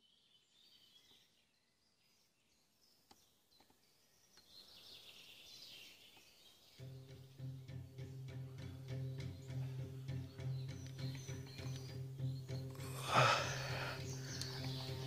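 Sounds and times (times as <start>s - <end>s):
birds chirping: 0.0s - 15.0s
music: 6.8s - 15.0s
small clicks: 14.2s - 15.0s.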